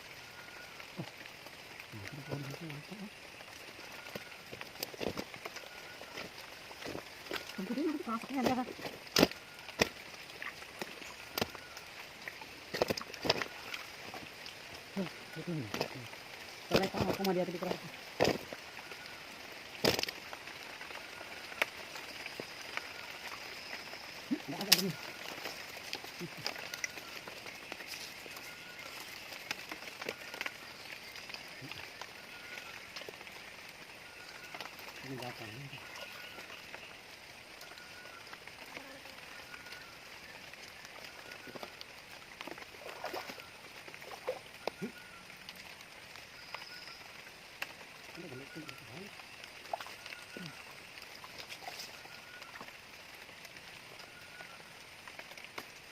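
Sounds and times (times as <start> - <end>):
rain falling: 0.0 - 55.9
drip-like ticks: 0.1 - 38.8, 40.5 - 55.9
short rustle or splash: 42.5 - 44.9.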